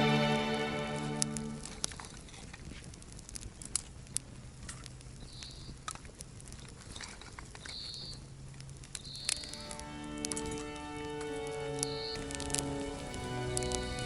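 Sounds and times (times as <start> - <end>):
background music: 0.0 - 1.9, 9.5 - 14.0
wood fire crackling: 0.0 - 7.8, 8.4 - 14.0.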